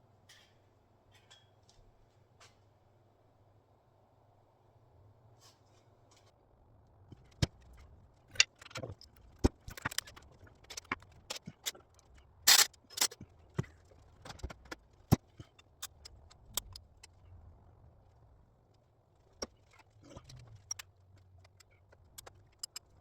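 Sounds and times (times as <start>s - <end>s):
metal parts rattling: 12.5s - 13.2s.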